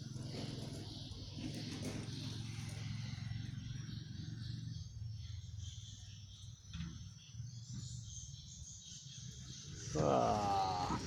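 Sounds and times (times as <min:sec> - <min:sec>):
vehicle engine drone: 0:07.5 - 0:11.0.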